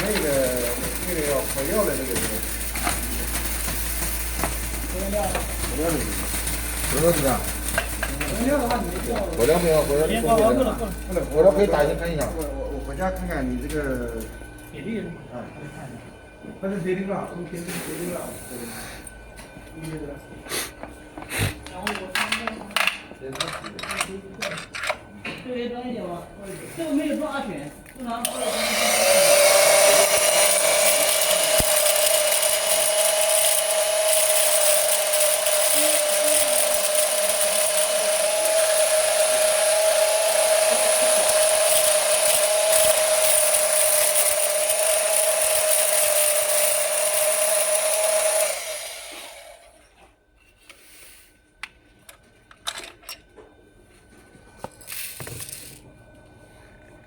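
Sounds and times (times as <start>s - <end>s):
grains clicking and rattling: 0.0s - 11.6s
rice husker whining: 0.0s - 15.2s, 28.2s - 49.9s.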